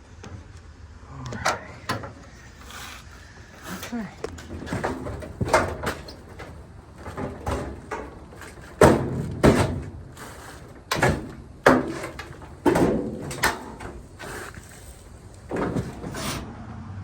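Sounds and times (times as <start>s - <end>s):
dryer cabinet clunking: 3.2s - 16.5s.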